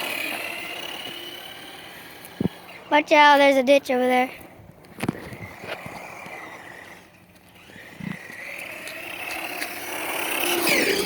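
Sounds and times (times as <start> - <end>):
truck motor whining: 0.0 - 11.0.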